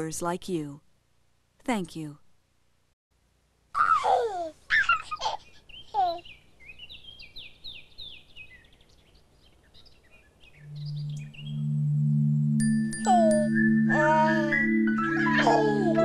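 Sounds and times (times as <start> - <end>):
low held musical tone: 10.6 - 16.0.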